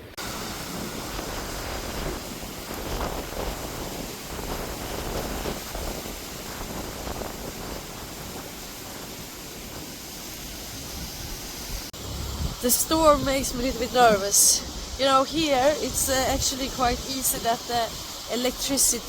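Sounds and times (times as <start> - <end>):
storm wind buffeting microphone: 0.0 - 19.0
low rumble: 12.0 - 17.0.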